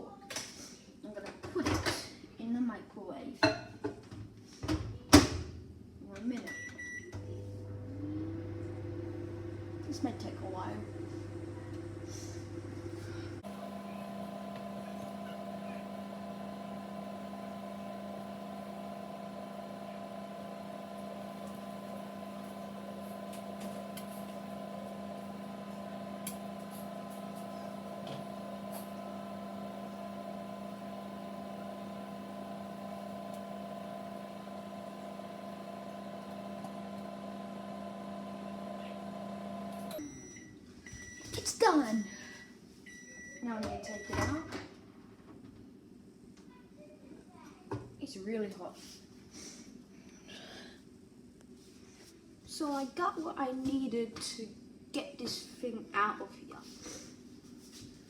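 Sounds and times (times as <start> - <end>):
microwave oven hum: 6.4 - 45.1.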